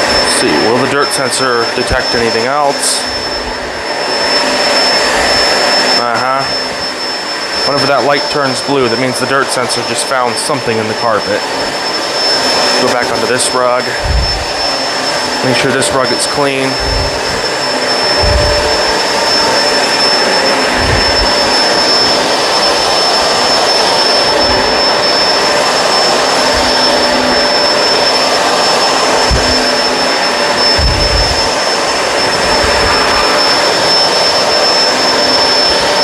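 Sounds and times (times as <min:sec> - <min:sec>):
vacuum cleaner running: 0:00.0 - 0:36.0
vacuum low bumps: 0:13.9 - 0:14.7, 0:16.7 - 0:17.5, 0:18.1 - 0:19.2, 0:20.6 - 0:21.6, 0:29.2 - 0:29.7, 0:30.7 - 0:31.5.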